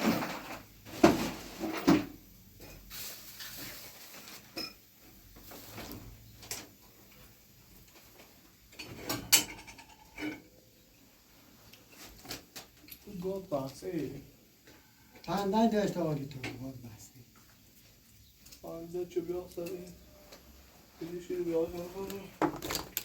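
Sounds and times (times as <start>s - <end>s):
knocks and clatter of plumbing work: 0.0s - 10.6s, 22.1s - 23.0s
quiet handling noises: 16.2s - 23.0s.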